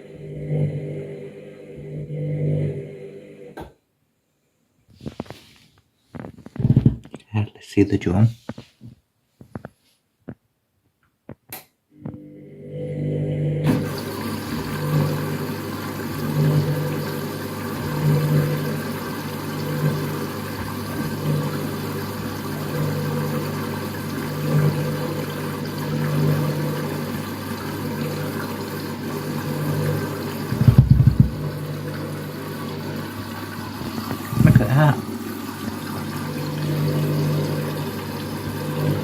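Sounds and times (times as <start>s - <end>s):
washing machine drum tumbling: 30.4s - 33.0s.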